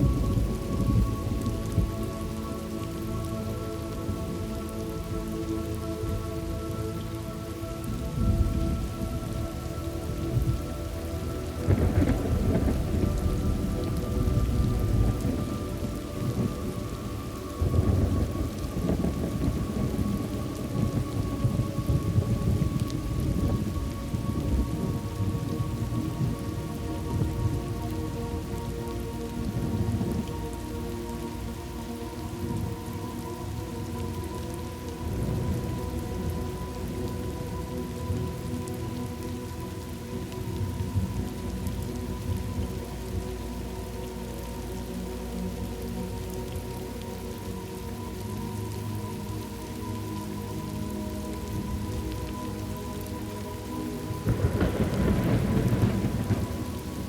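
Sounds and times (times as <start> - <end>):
steady rain: 0.0 - 57.0
rolling thunder: 11.6 - 28.6, 54.3 - 57.0.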